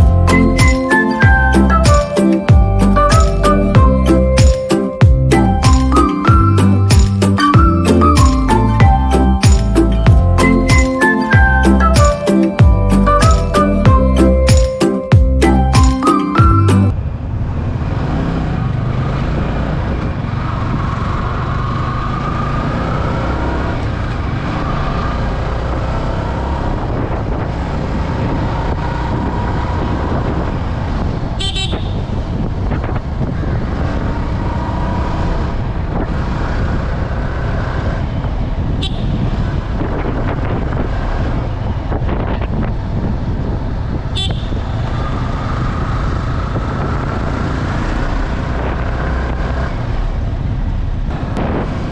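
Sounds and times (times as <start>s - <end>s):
motorcycle engine cruising: 0.0s - 51.9s
road and air noise: 0.0s - 51.9s.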